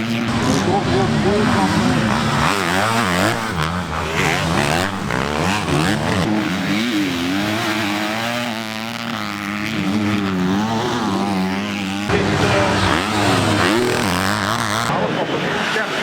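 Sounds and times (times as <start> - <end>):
motocross bike engines revving: 0.0 - 16.0.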